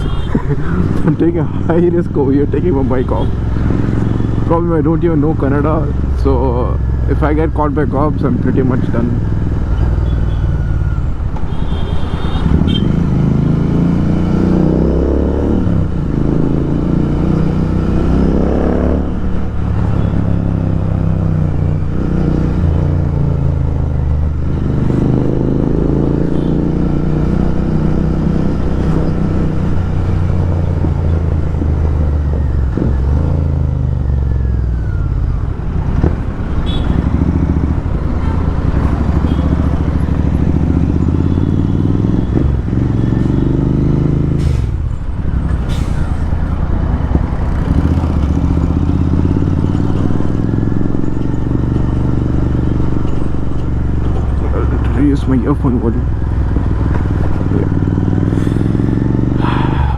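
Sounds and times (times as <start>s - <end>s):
loud motorcycle exhaust: 56.1s - 59.9s.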